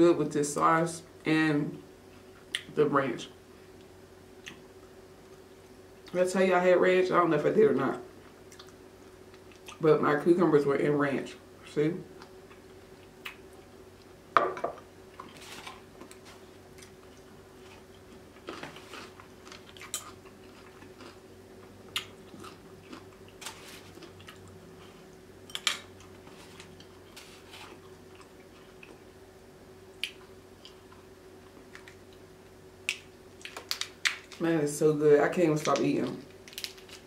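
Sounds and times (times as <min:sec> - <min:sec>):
faint steady hum: 0:00.0 - 0:37.0
chewing and wet mouth smacks: 0:08.5 - 0:08.8.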